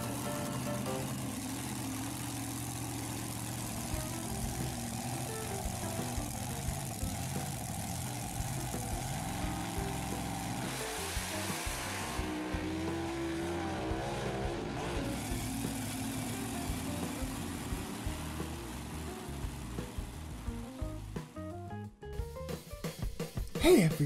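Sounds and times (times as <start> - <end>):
cartoon vehicle engine effects: 0.0 - 21.4
background music with beat: 16.7 - 24.0.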